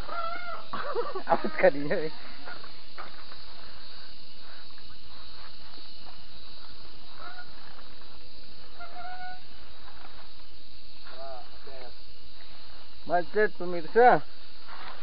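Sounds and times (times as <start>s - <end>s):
bike riding rumble on dirt trail: 0.0s - 13.1s, 14.2s - 15.0s
faint short calls: 8.6s - 9.7s.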